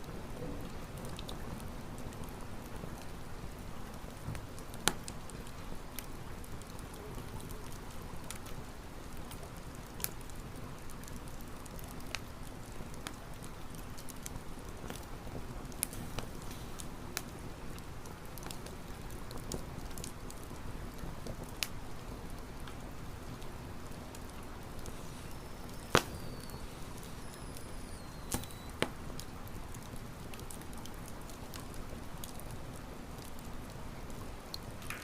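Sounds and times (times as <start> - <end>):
campfire crackling and popping: 0.0 - 35.0
faint high falling whistles: 24.9 - 28.8.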